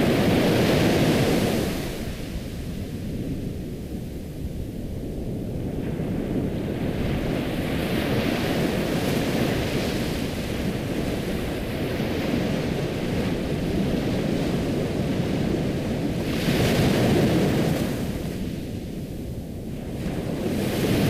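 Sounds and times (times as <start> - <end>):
ocean waves washing in: 0.0 - 4.4.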